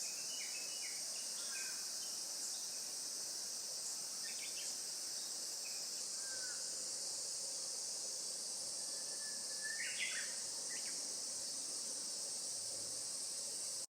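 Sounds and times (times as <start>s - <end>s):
bird whistling call: 9.0s - 10.3s.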